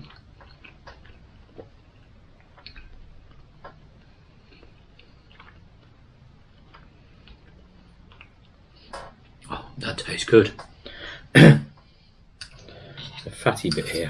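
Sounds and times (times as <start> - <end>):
quiet chewing: 0.0 - 9.6.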